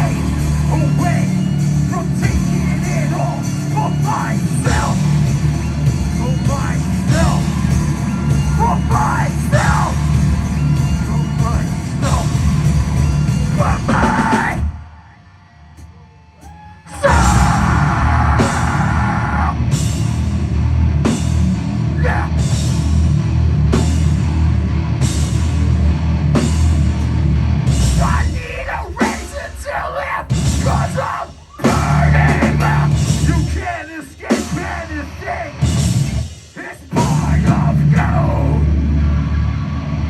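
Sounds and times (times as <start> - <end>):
heavy metal band playing live: 0.0 - 15.0, 16.4 - 40.0
drum kit cymbal hits: 26.4 - 38.2.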